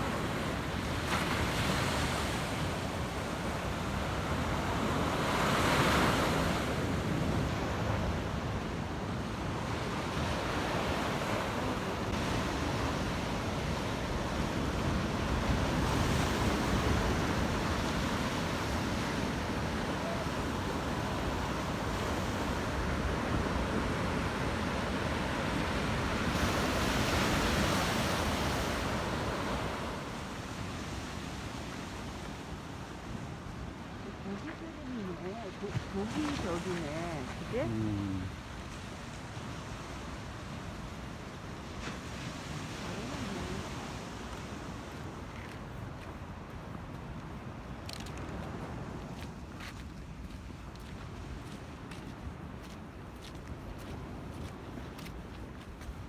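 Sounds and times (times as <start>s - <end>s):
surf breaking on beach: 0.0s - 31.5s, 34.0s - 40.3s, 41.1s - 45.6s
wind: 0.0s - 56.0s.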